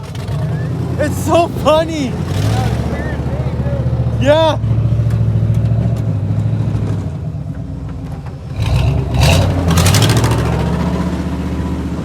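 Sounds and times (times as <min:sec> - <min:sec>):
vehicle engine revving: 0:02.1 - 0:07.1, 0:08.5 - 0:12.0.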